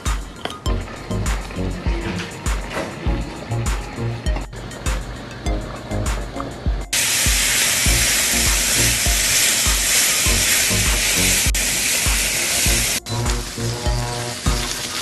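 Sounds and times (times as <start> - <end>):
background music with low beat: 0.0 - 15.0
quieter frying sound: 0.0 - 15.0
sausages sizzling in hot oil: 7.0 - 15.0.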